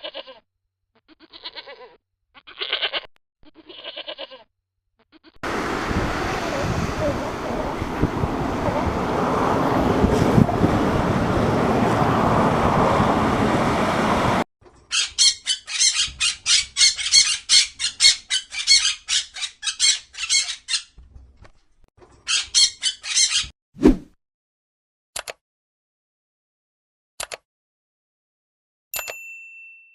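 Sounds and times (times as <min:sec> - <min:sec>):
steady outdoor noise: 0:05.4 - 0:14.9
sharp high squawking calls: 0:14.9 - 0:21.0, 0:22.3 - 0:23.5.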